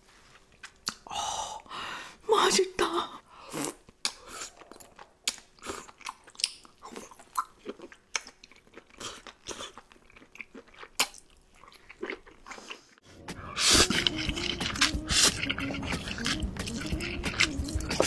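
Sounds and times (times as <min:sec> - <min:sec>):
wet chewing and mouth clicks: 0:03.6 - 0:18.0.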